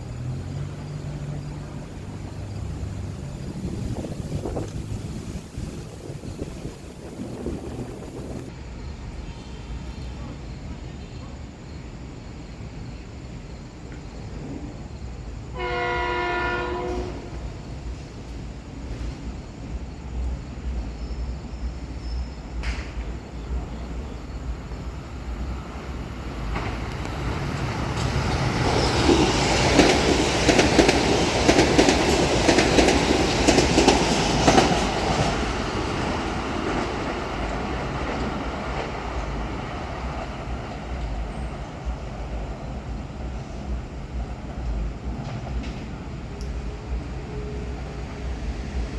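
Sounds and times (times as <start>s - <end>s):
train wheels clattering over rail joints: 1.6s - 8.5s, 26.3s - 41.3s, 43.7s - 46.6s
train horn blast: 15.5s - 17.7s.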